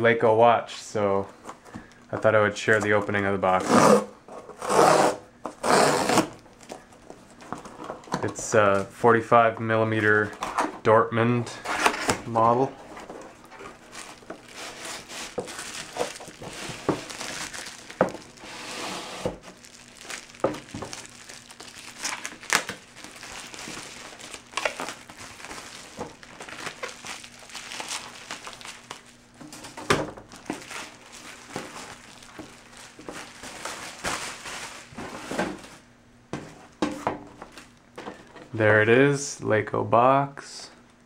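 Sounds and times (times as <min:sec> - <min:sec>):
packing material crinkling: 0:05.5 - 0:09.0, 0:11.6 - 0:35.9
sharp crackles and knocks: 0:12.9 - 0:18.5, 0:19.2 - 0:38.5.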